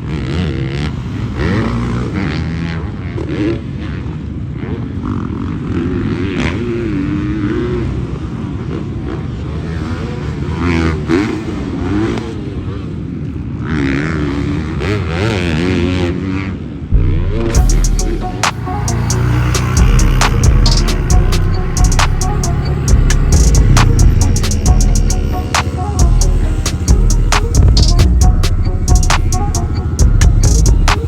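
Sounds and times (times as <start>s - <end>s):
dirt bike engines revving: 0.0s - 31.0s.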